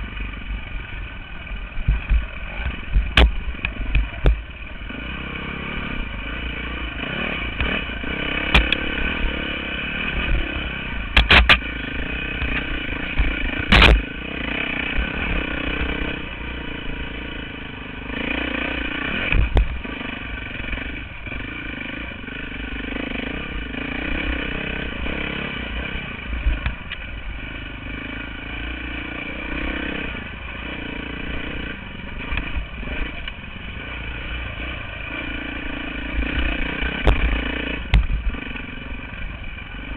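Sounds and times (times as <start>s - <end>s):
dirt bike engine revving: 0.0s - 39.9s
sharp knocks: 11.1s - 11.6s.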